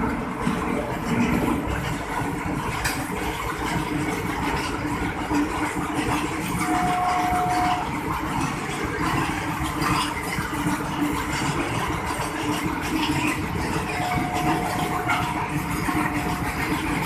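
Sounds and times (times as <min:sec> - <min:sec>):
freight train rumbling: 0:00.0 - 0:17.0
steady higher tone: 0:06.5 - 0:08.0, 0:13.8 - 0:17.0.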